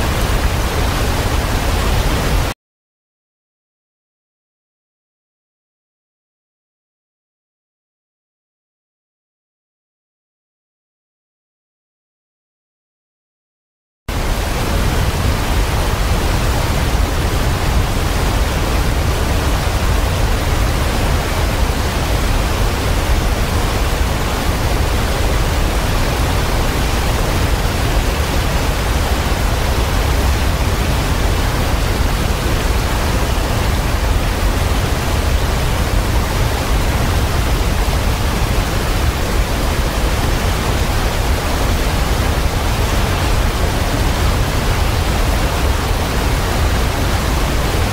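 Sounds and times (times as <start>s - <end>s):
waterfall rushing: 0.0s - 2.6s, 14.1s - 47.9s.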